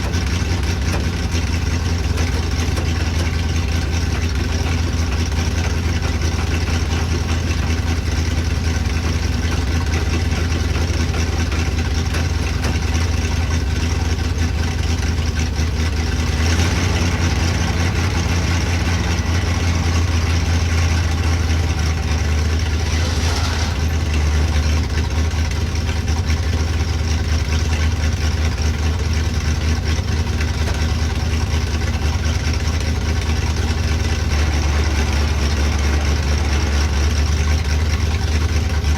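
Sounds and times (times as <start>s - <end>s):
truck engine idling: 0.0s - 38.9s
brief hiss: 22.8s - 24.2s.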